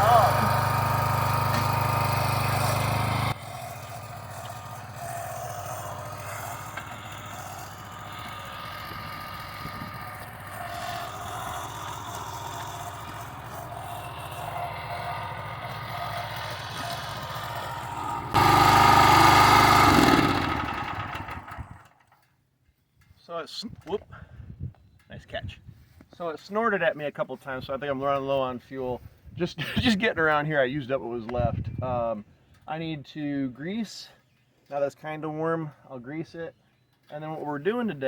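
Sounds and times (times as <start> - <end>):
tractor engine running: 0.0 - 22.1.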